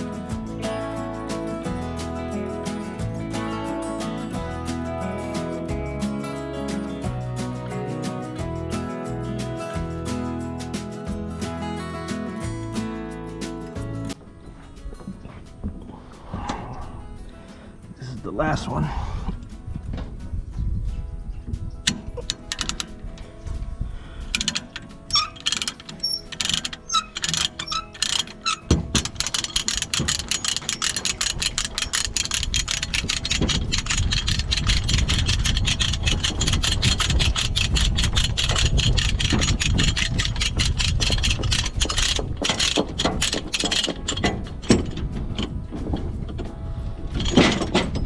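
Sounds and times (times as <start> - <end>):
ratchet strap clicking: 21.9 - 23.0, 24.1 - 46.0.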